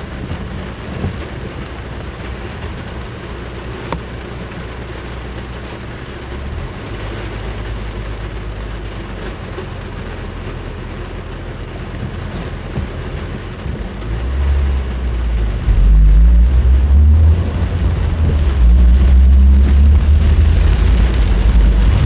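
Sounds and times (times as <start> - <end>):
car road and engine rumble: 0.0 - 22.0
rain and tyre noise: 0.0 - 22.0
deep low rumble: 13.6 - 22.0.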